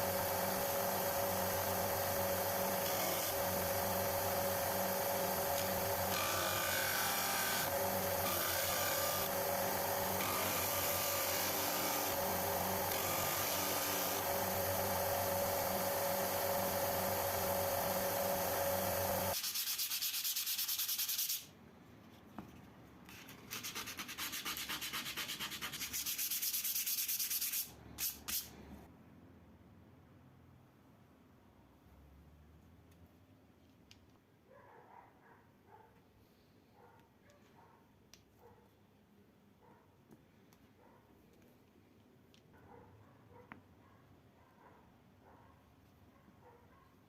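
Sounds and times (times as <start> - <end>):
power sander humming: 0.0 - 19.4
hand sanding strokes: 19.4 - 21.5, 23.6 - 28.5.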